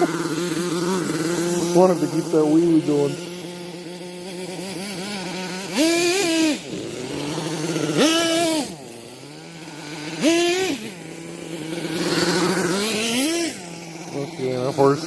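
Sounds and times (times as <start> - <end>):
small engine idling and revving: 0.0 - 15.0.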